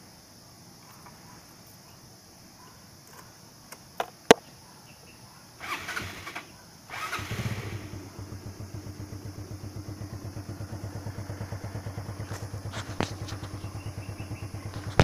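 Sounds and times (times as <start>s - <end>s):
motorcycle engine starting and idling: 5.6s - 15.0s.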